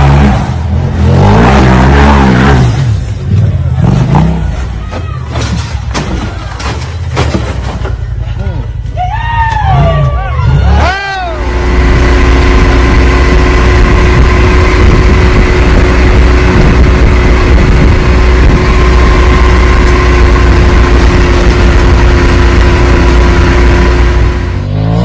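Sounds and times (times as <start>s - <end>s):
vehicle engine running: 9.8s - 25.0s.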